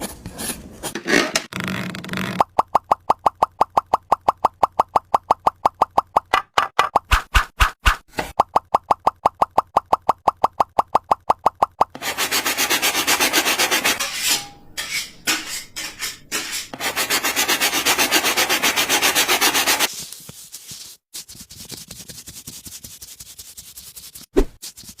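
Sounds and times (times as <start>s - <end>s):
wood sanded by hand: 12.0s - 14.0s, 16.8s - 25.0s.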